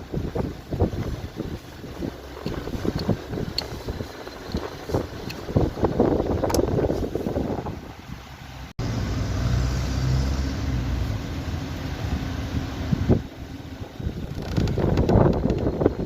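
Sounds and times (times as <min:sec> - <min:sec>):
car engine idling: 0:00.0 - 0:09.1, 0:10.6 - 0:16.0
rustling noise: 0:00.2 - 0:07.9, 0:14.1 - 0:16.0.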